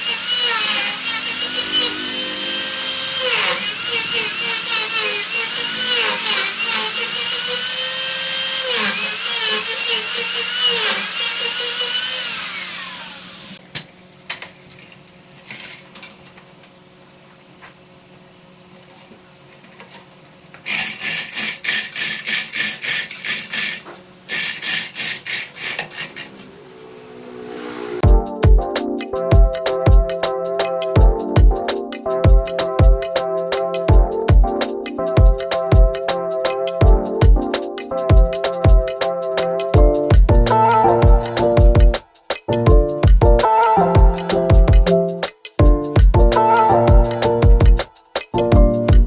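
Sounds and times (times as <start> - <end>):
lathe whine over hiss: 0.0 - 9.1, 9.9 - 13.6, 20.7 - 28.1
rasping strokes on wood: 0.0 - 13.3.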